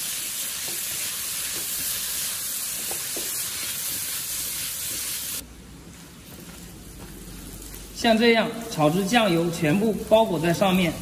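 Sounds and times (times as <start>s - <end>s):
food sizzling in a frying pan: 0.0s - 5.4s.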